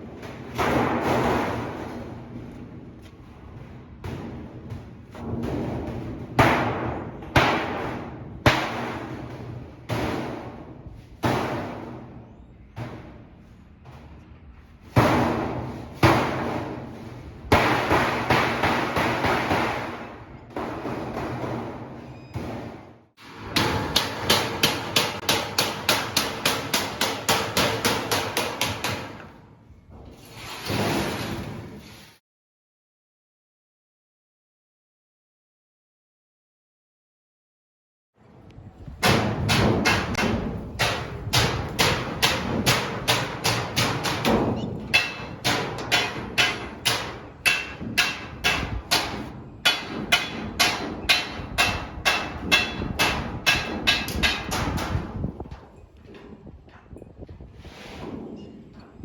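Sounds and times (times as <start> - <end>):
hammer on sheet metal: 5.2 - 12.1, 17.5 - 22.8, 23.4 - 29.3, 39.0 - 55.2.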